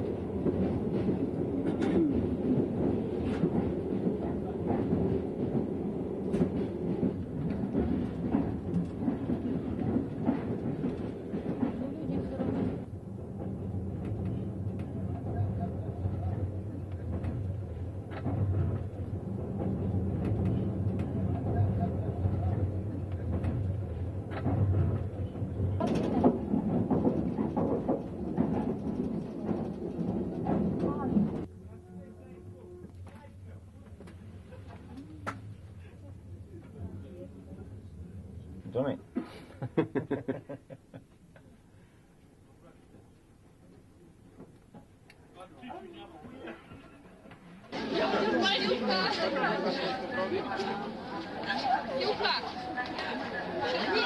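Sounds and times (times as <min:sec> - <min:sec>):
train clacks and rattles: 0:00.0 - 0:31.6
train rumbling on rails: 0:00.0 - 0:31.7.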